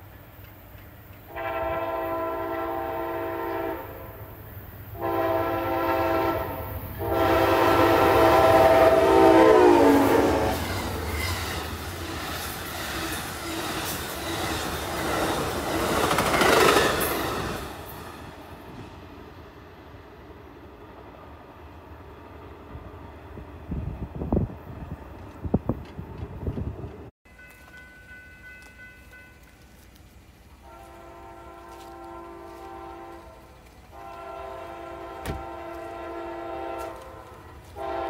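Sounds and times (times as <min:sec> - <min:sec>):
train cars rumbling on rails: 0:00.0 - 0:38.0
train horn blasts: 0:01.3 - 0:04.4, 0:05.0 - 0:11.4, 0:30.5 - 0:38.0.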